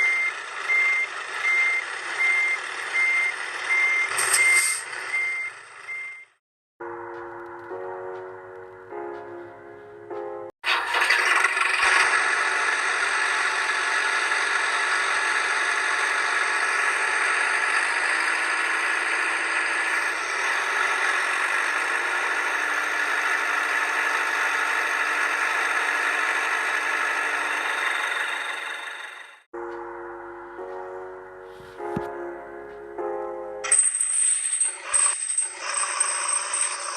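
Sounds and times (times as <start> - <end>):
engine running with rattle: 0.0 - 6.2, 10.6 - 29.5, 33.6 - 36.9.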